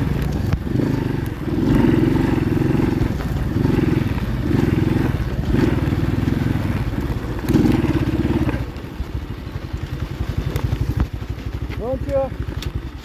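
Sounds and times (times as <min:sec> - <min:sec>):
motorbike engine revving: 0:00.0 - 0:13.0.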